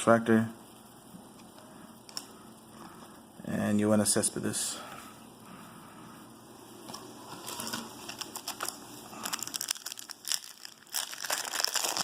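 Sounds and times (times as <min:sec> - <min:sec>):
foil wrapper crinkling and tearing: 0:07.5 - 0:12.0.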